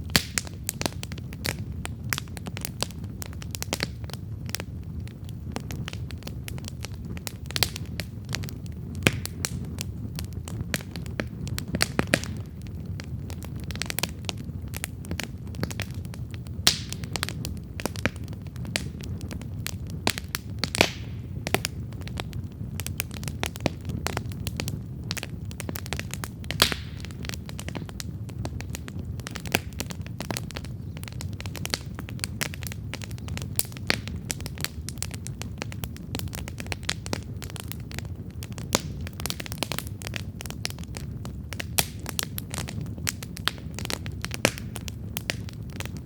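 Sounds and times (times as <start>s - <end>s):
fire crackles and pops: 0.0s - 46.0s
low rumble of flames: 0.0s - 46.0s.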